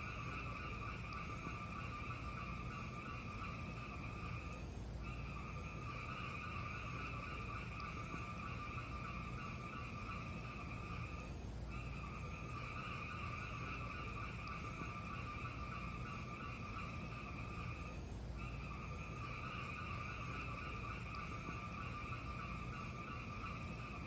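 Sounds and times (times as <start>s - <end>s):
fire burning rumble: 15.9s - 18.6s.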